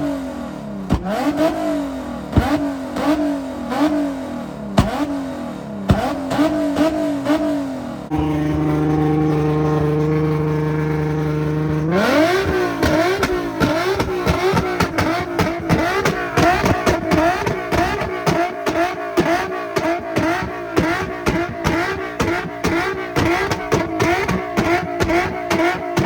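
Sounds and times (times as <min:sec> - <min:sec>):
car engine revving: 0:00.0 - 0:26.0
exhaust pops and crackles: 0:00.8 - 0:01.4, 0:02.3 - 0:03.2, 0:08.1 - 0:26.0.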